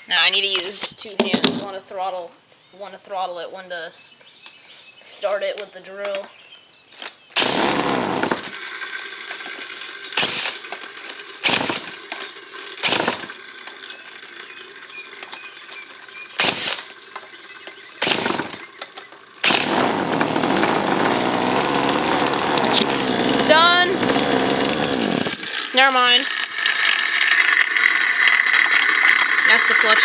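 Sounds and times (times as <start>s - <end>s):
chainsaw engine revving: 7.4s - 30.0s.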